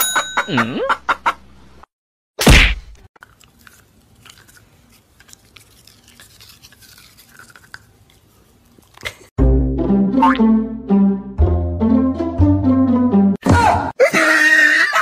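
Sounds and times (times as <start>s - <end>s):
dog chewing toothbrush: 3.2s - 9.2s
loud music: 9.4s - 13.4s.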